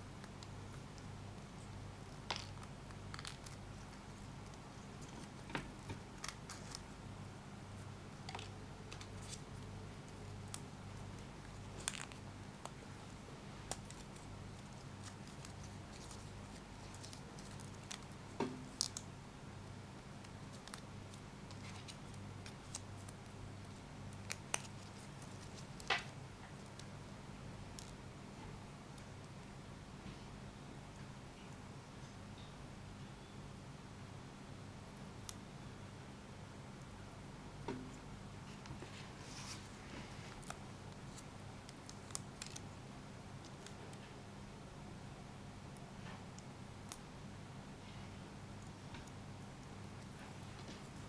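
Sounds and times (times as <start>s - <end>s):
steady low hum: 0.0s - 51.0s
hands handling plastic packaging: 2.0s - 7.1s, 7.7s - 19.1s, 20.1s - 27.0s, 38.5s - 42.8s.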